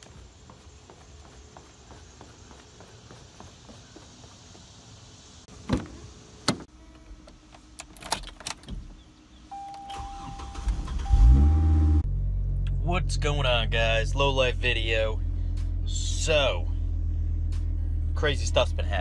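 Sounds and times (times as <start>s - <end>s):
car engine cranking and starting: 7.6s - 12.8s.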